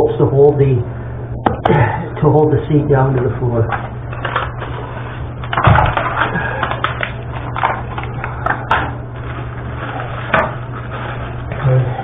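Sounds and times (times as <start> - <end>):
steady low hum: 0.0 - 12.0
scrapes and rustles: 9.1 - 12.0.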